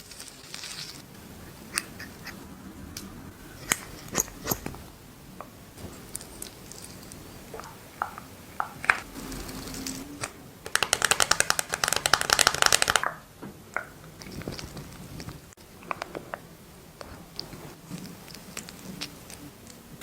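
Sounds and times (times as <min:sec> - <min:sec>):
fast sharp clicking taps: 0:10.7 - 0:13.2.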